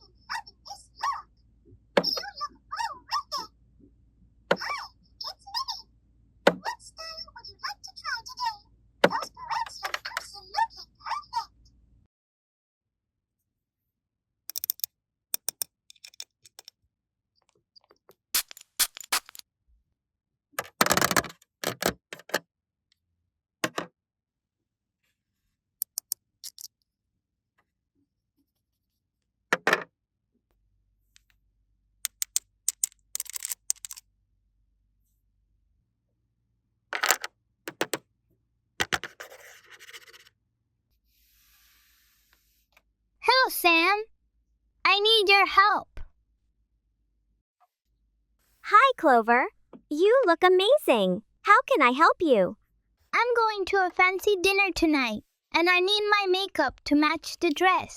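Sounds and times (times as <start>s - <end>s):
toy pieces clattering: 14.5s - 16.7s, 18.4s - 19.4s, 25.8s - 26.7s, 32.1s - 34.0s, 37.0s - 38.0s
toy pieces clicking and tapping: 14.5s - 16.7s, 18.4s - 19.4s, 20.6s - 22.4s, 25.8s - 26.7s, 32.1s - 34.0s, 37.0s - 38.0s
toy scratching: 14.5s - 16.7s, 32.1s - 34.0s, 38.8s - 40.3s.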